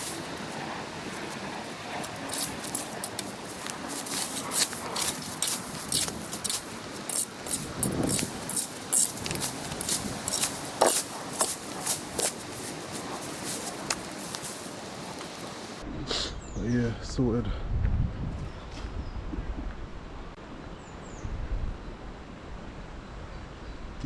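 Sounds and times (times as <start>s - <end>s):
scraping rustling strokes: 0.0s - 15.8s.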